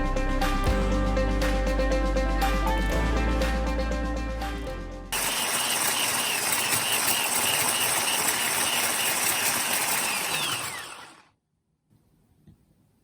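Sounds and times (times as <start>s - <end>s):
electric hand mixer whine: 5.2s - 11.3s.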